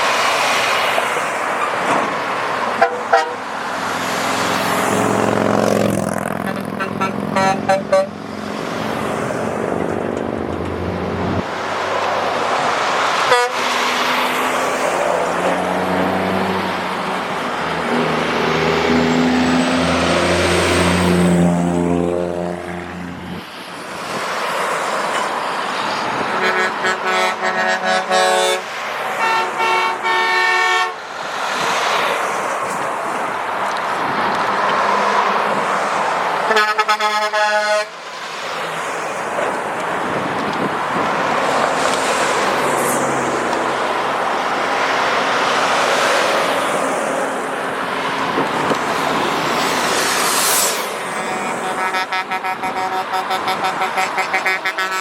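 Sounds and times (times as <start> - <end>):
truck engines and road noise: 0.0 - 55.0
truck air horns: 2.7 - 3.6, 6.4 - 8.2, 13.2 - 14.1, 26.2 - 31.0, 36.4 - 38.0, 50.6 - 55.0.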